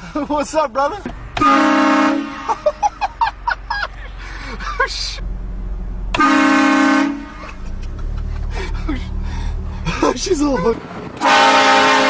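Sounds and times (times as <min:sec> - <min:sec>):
low engine rumble: 0:00.0 - 0:12.0
loud vehicle horn blast: 0:01.4 - 0:02.6, 0:06.1 - 0:07.5, 0:11.2 - 0:12.0
voices: 0:09.8 - 0:11.2.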